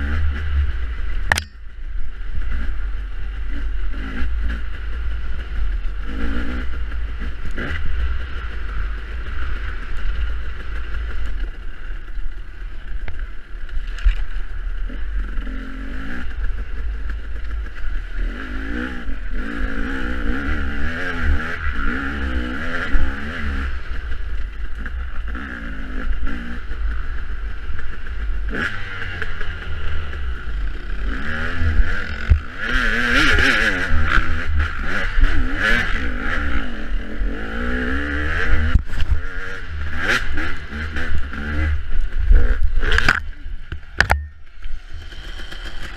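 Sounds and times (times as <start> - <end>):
dirt bike engine revving: 2.5 - 11.3, 14.8 - 45.9.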